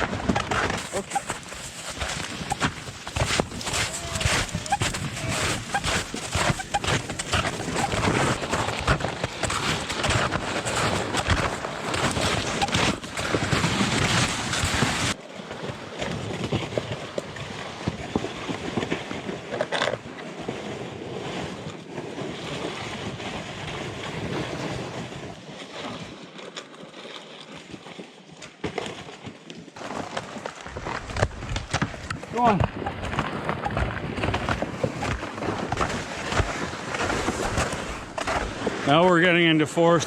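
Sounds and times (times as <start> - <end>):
footsteps on wet snow: 0.0 - 15.1, 34.2 - 39.0
sleds scraping over snow: 0.0 - 19.9, 29.8 - 40.0.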